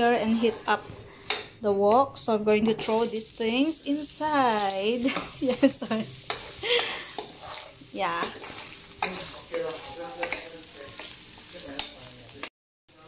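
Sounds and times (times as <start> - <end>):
scraping against metal wok: 0.2 - 1.6, 6.2 - 12.1
garlic and onion sizzling in wok: 2.7 - 13.0.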